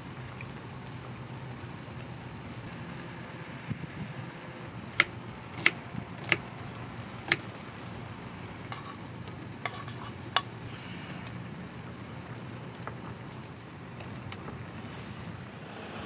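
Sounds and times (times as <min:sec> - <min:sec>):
light scraping: 0:08.7 - 0:10.5, 0:14.4 - 0:15.5.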